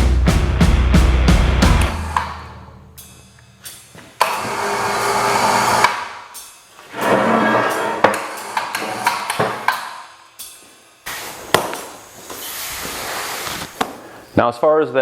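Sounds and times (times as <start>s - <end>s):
background music: 0.0s - 8.1s
power tool bursts: 4.2s - 6.1s.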